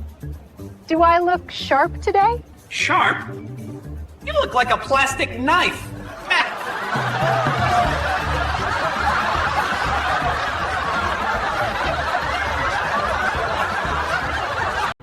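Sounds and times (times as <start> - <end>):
crowd laughing: 5.6 - 15.0.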